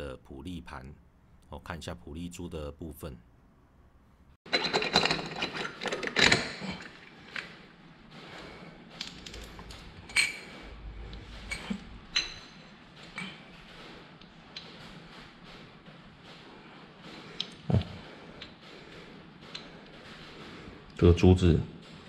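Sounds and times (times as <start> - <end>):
metal parts clinking: 4.5 - 7.0.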